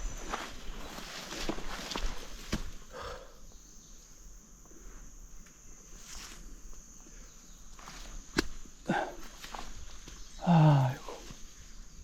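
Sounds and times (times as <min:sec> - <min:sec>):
footsteps on ground: 0:00.0 - 0:02.9, 0:07.8 - 0:10.4.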